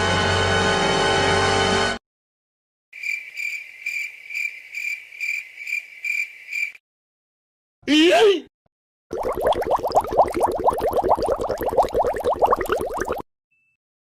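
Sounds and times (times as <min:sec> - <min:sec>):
cricket chirping: 0:03.0 - 0:06.8.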